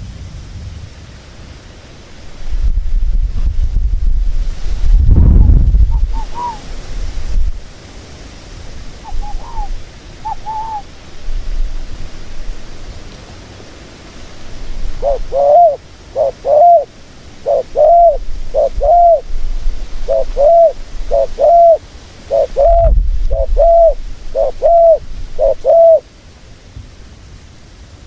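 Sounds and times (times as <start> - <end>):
dove cooing: 5.7 - 6.8, 9.0 - 11.0, 14.7 - 26.1.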